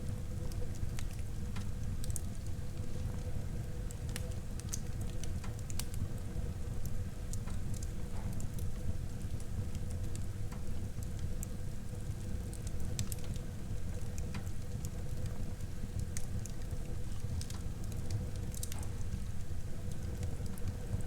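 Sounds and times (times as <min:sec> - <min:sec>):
fire crackles and pops: 0:00.1 - 0:21.0.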